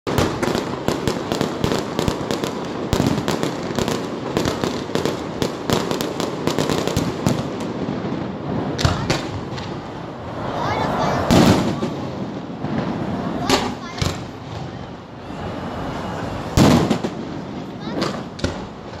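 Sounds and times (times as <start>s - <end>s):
fireworks bangs and crackles: 0.1s - 19.0s.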